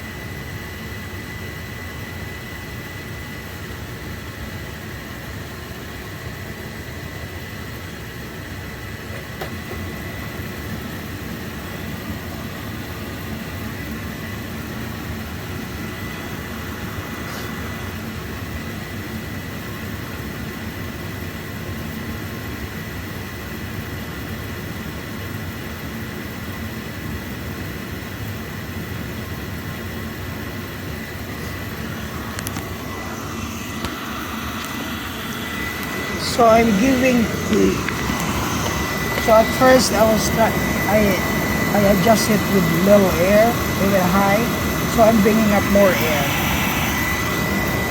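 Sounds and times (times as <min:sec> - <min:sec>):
high whine: 0:29.5 - 0:47.9
oil burner firing: 0:31.4 - 0:43.8.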